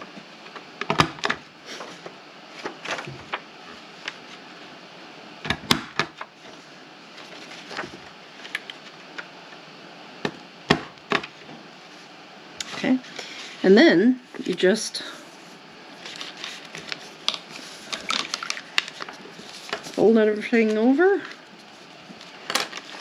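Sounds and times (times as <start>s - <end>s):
paper being handled: 16.0s - 20.8s, 21.6s - 23.0s.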